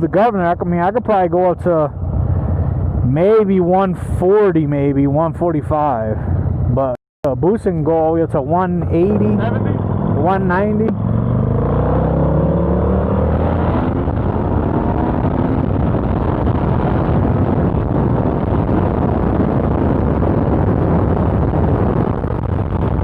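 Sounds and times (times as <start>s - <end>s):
wind on microphone: 8.6s - 23.0s
motorcycle engine accelerating: 8.8s - 23.0s.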